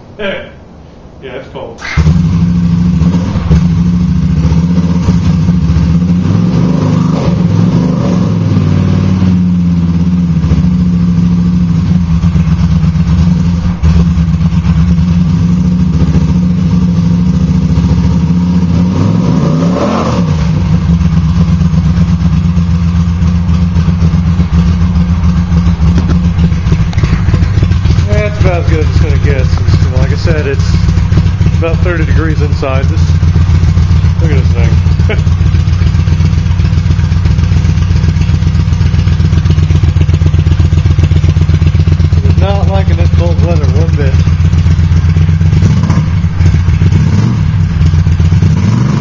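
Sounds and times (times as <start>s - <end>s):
motorcycle engine idling and revving: 1.8s - 49.0s.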